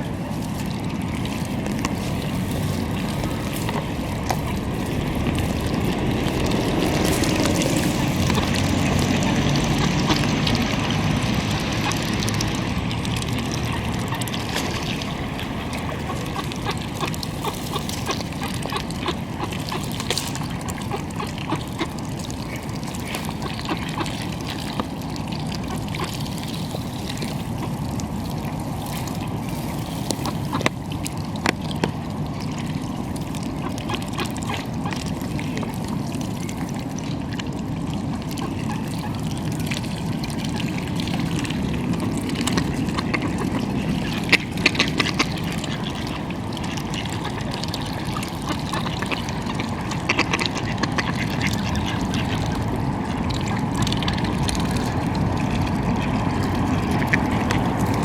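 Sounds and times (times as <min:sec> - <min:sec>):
low rumble: 0:00.0 - 0:19.4
water noise: 0:00.0 - 0:58.0
wind: 0:00.0 - 0:58.0.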